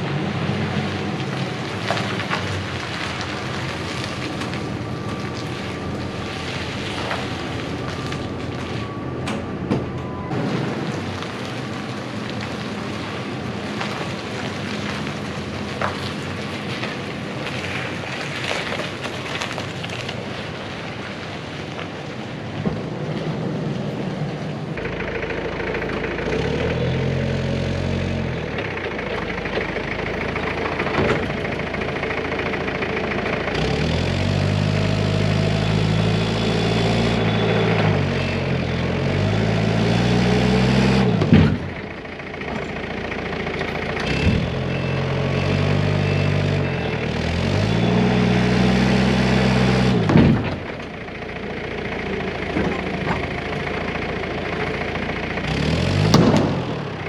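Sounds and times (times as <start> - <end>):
tanks cracking and crunching: 0.0 - 23.5, 24.3 - 57.0
loader engine revving: 23.3 - 57.0.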